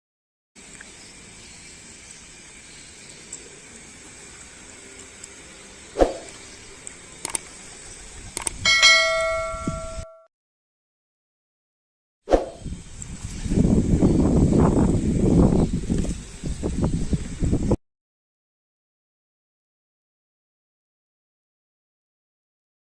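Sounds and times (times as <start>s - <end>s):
steady hiss: 0.6s - 8.4s
metal object ringing like a bell: 8.6s - 10.3s.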